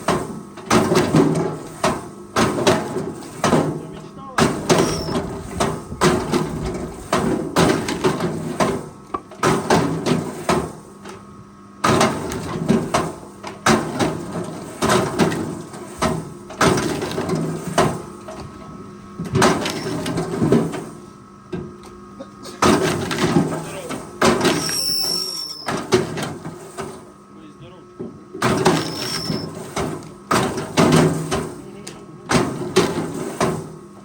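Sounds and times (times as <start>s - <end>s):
loud knocks and clatter: 0.0s - 10.8s, 11.8s - 18.5s, 19.2s - 20.9s, 22.6s - 24.6s, 28.0s - 31.6s, 32.3s - 33.8s
machine engine hum: 0.0s - 34.0s.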